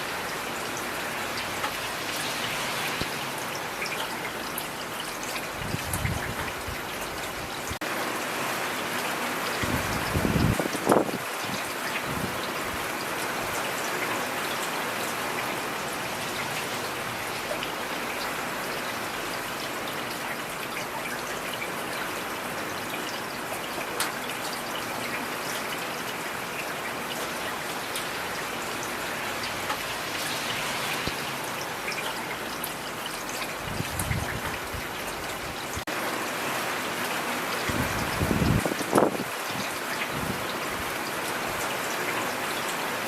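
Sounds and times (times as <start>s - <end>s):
steady rain hiss: 0.0s - 43.0s
raindrops tapping: 27.0s - 36.0s.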